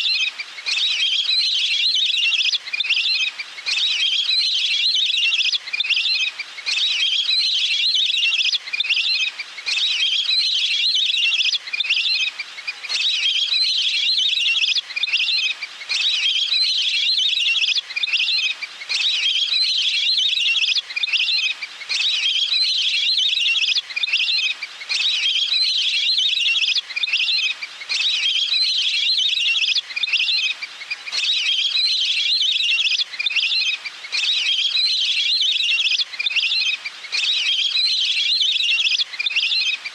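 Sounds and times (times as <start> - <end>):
duck calls chirping and whistling: 12.9 - 39.9.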